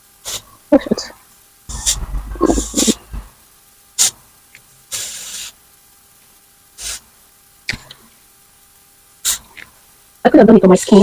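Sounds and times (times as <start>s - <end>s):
adhesive spray hissing: 1.7s - 3.3s, 4.9s - 5.6s, 6.8s - 7.1s.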